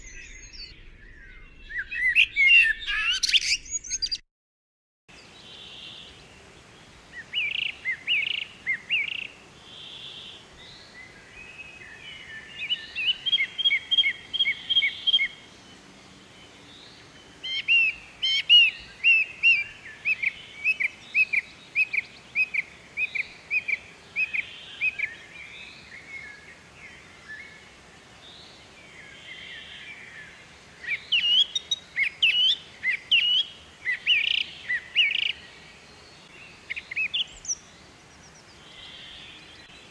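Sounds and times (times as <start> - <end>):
bird chirping rapidly: 0.0 - 4.2
faint background bird calls: 0.0 - 4.2, 5.1 - 39.9.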